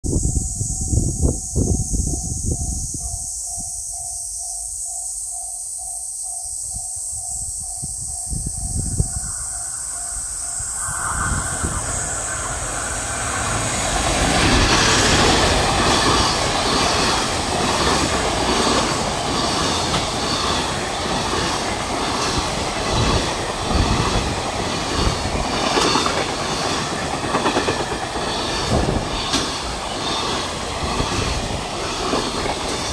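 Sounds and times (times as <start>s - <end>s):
train wheels clattering over rail joints: 14.2s - 32.9s.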